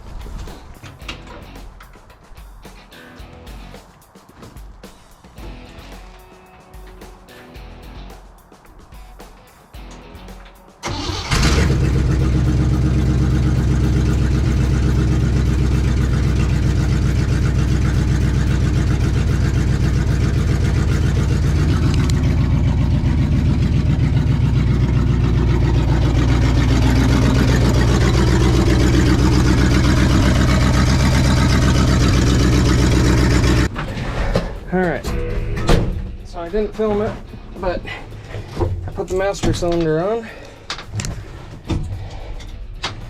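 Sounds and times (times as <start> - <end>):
pickup engine starting and idling: 10.8 - 36.3.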